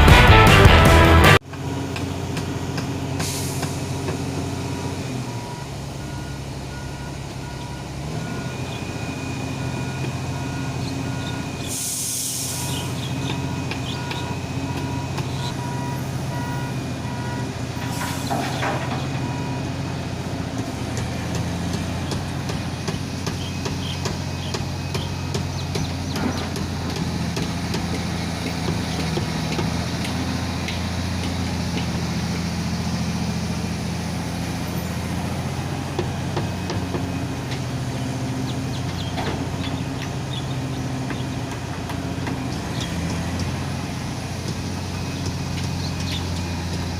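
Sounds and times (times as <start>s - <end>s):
excavator diesel engine running: 0.0s - 46.9s
short blasts of air hiss: 3.2s - 3.8s, 11.7s - 12.9s
pulsed beeping alarm: 4.7s - 19.8s, 21.7s - 27.0s.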